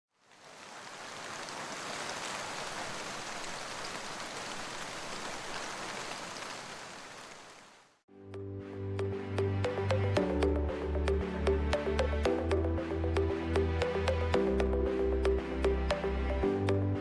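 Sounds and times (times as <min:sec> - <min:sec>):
rushing hiss with faint ticks: 0:00.3 - 0:07.8
electronic music with steady beat: 0:08.4 - 0:17.0.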